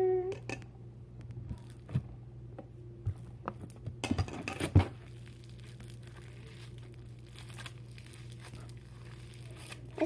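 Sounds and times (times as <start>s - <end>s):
sticky slime clicking and crackling: 5.0s - 10.0s.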